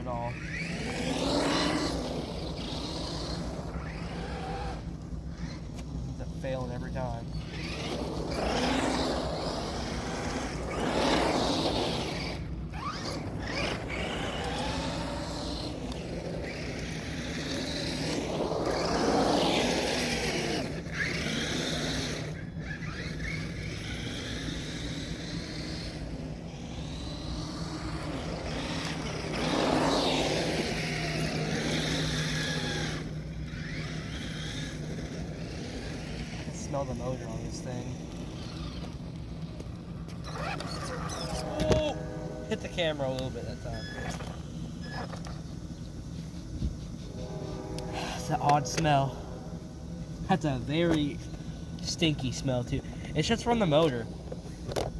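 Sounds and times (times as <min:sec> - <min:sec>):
electric motor whining: 0:00.0 - 0:54.9.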